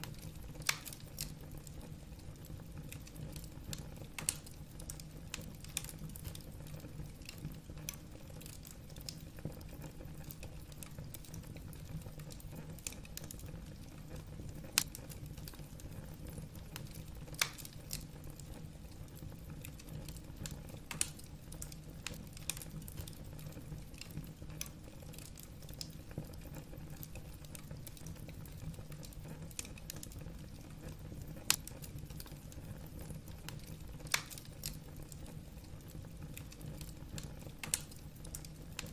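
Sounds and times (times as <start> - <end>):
fire rumbling: 0.0 - 38.9
logs popping and snapping: 17.4 - 18.0, 34.1 - 34.8.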